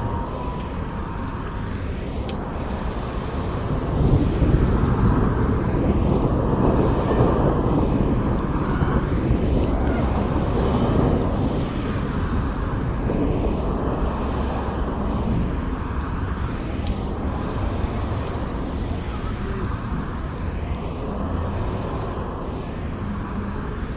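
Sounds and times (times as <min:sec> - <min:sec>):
low rumbling ambience: 0:00.0 - 0:23.9.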